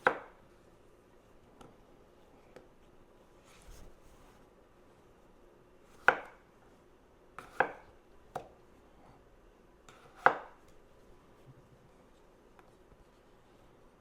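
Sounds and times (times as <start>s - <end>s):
knife chopping on cutting board: 0.0s - 0.4s, 5.9s - 6.4s, 7.4s - 8.5s, 9.9s - 10.6s.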